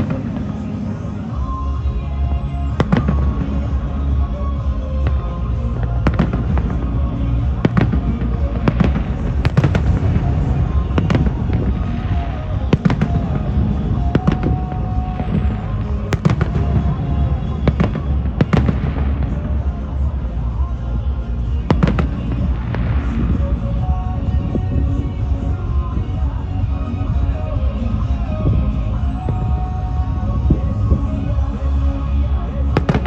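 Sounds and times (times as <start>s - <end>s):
fireworks bursting with sharp bangs: 0.0s - 26.5s, 27.1s - 33.0s
music with held notes: 0.0s - 33.0s.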